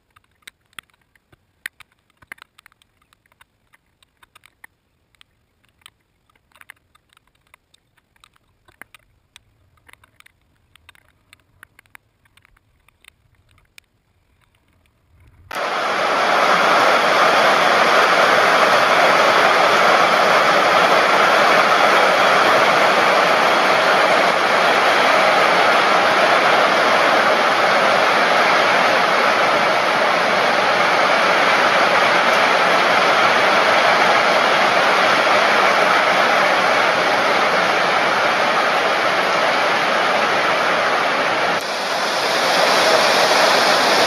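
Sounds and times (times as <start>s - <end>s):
faint ticks: 0.0s - 15.5s
heavy rain downpour: 15.5s - 44.0s.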